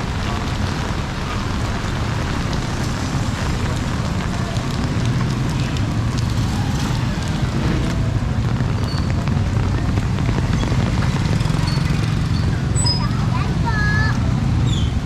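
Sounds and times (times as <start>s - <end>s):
heavy rain pattering: 0.0s - 15.0s.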